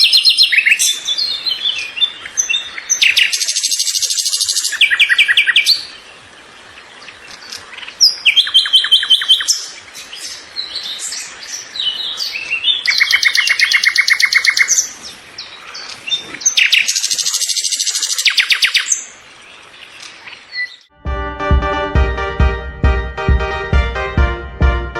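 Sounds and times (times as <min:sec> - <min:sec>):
songbird trills: 0:07.0 - 0:20.9.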